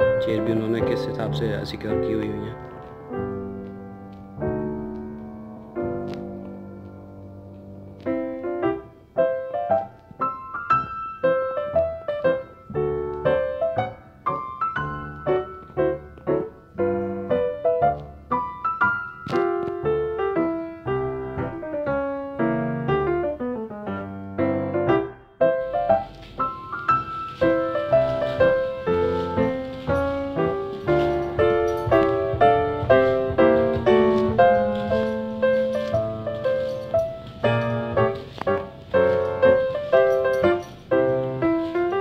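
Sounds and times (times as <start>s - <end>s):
solo piano music: 0.0s - 42.0s.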